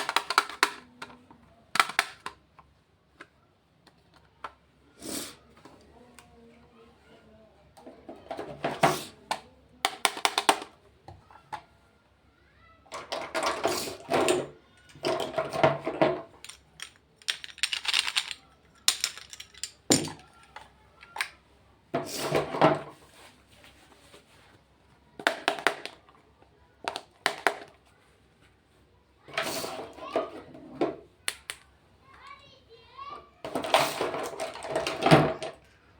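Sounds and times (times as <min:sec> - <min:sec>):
plastic and cardboard crinkling: 0:16.3 - 0:21.2.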